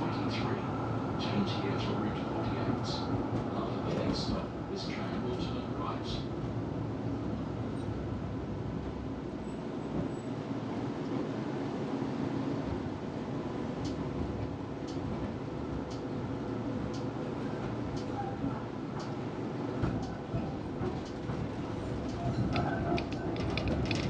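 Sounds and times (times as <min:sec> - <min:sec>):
tram rolling on rails: 0:00.0 - 0:24.0
light ticking: 0:14.8 - 0:15.0.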